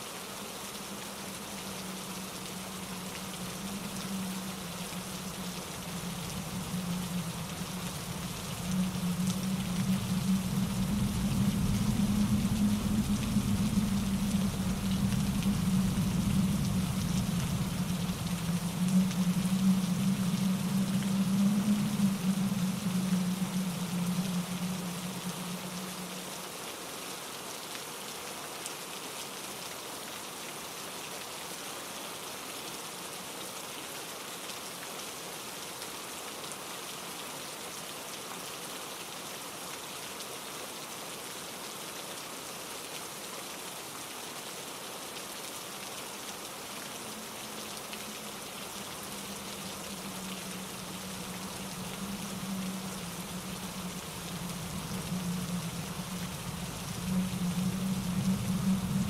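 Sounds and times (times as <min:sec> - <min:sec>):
rain falling: 0:00.0 - 0:59.0
low steady hum: 0:00.7 - 0:26.6, 0:47.0 - 0:59.0.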